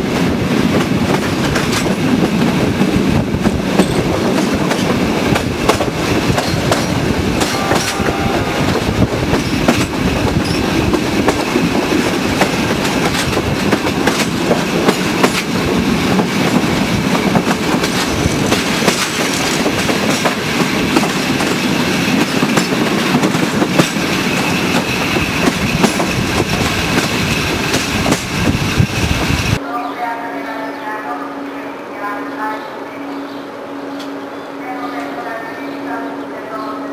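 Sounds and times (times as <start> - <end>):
train wheels rushing on rail: 0.0 - 29.6
wheels clacking over rail joints: 0.7 - 2.6, 3.3 - 8.0, 8.7 - 28.6.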